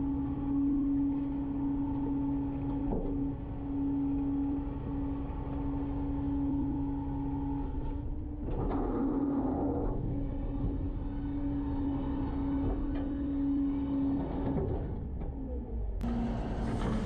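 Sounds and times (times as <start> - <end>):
loud rough mechanical noise: 0.0 - 17.0
garbage truck humming: 16.0 - 17.0.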